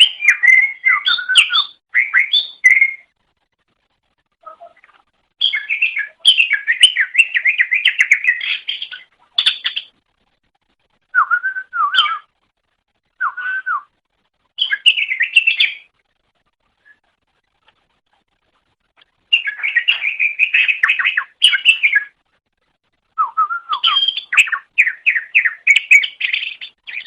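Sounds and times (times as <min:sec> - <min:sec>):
bird warbling song: 0:00.0 - 0:03.1, 0:04.4 - 0:10.0, 0:11.1 - 0:12.3, 0:14.6 - 0:16.0, 0:18.5 - 0:22.2, 0:23.2 - 0:27.0.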